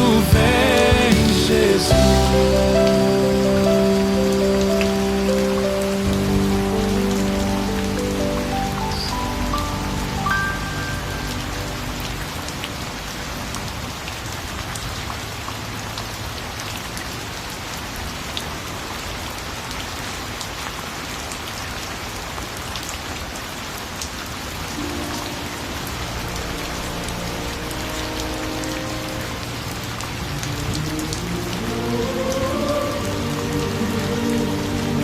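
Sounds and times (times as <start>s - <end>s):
hymn accompaniment: 0.0s - 5.3s
soft instrumental music: 0.0s - 14.1s, 24.8s - 35.0s
rain falling: 0.0s - 35.0s.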